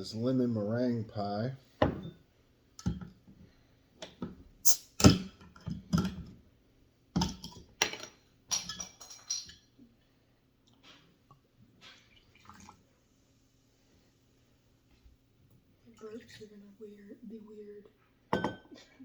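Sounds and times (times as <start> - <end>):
soda pouring into cups: 11.8 - 13.4.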